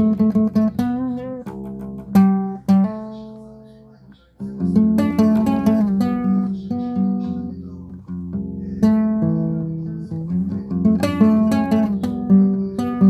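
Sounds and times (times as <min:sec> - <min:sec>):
guitar chords struck: 0:00.0 - 0:03.7
plucked guitar melody: 0:00.0 - 0:13.0.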